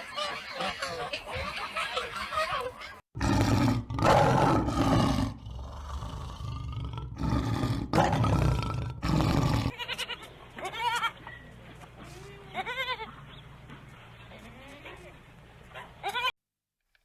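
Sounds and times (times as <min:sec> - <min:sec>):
big cat roaring: 0:03.2 - 0:09.7.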